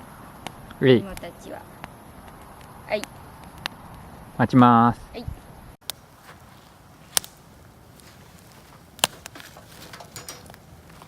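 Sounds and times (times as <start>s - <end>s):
wood fire crackling: 5.8s - 11.0s.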